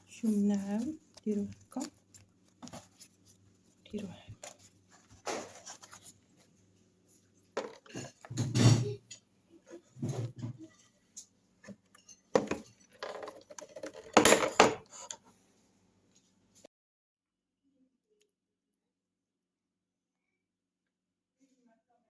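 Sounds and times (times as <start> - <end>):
utensils and dishes clinking: 11.9 - 15.2.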